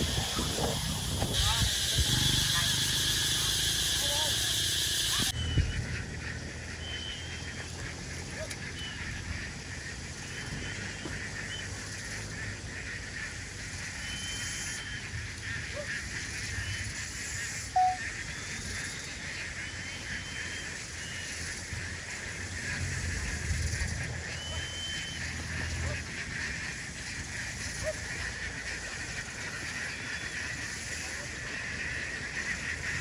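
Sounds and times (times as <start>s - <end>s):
flock of ducks quacking: 0.0s - 33.0s
short high chirps: 17.8s - 18.0s.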